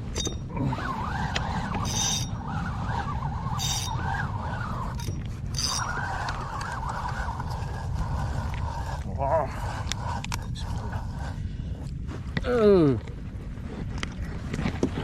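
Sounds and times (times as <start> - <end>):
fishing reel winding whine: 0.0 - 9.0
wind rumble on microphone: 0.0 - 15.0.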